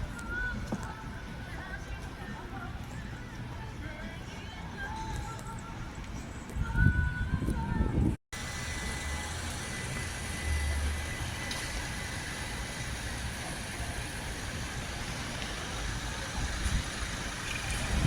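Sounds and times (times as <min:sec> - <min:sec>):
vehicle rumble and hiss: 0:07.7 - 0:18.0.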